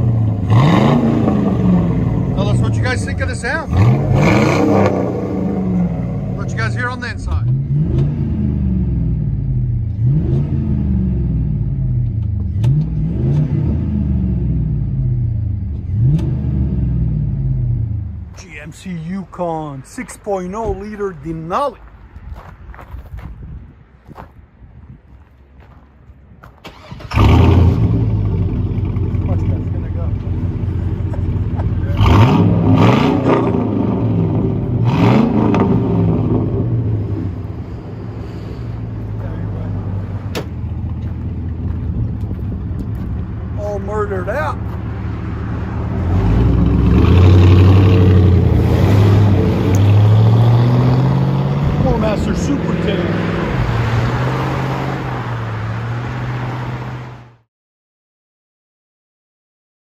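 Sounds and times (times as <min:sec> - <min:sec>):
engine revving: 0:00.0 - 0:18.2, 0:26.7 - 0:40.8, 0:43.6 - 0:57.4.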